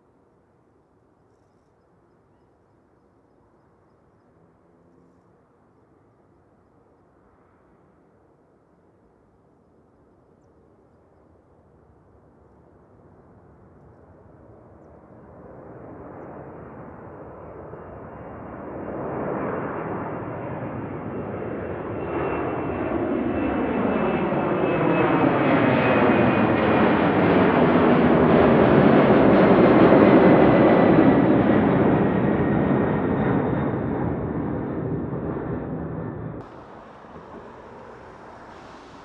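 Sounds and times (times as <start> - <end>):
jet engines roaring: 22.8 - 39.0
high whine sliding down: 36.4 - 39.0.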